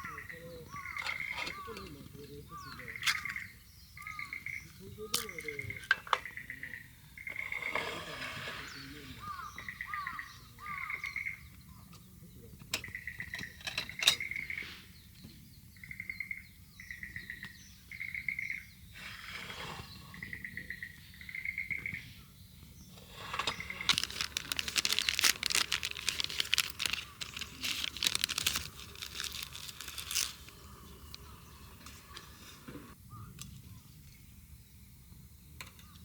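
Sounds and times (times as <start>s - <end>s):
crackling rustling noise: 23.0s - 33.0s.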